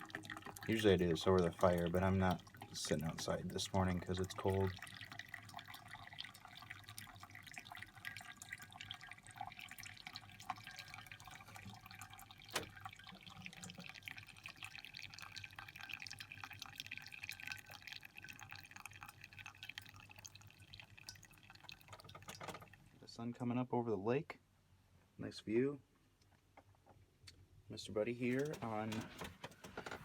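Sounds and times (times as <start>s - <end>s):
coffee dripping into a cup: 0.0s - 22.9s.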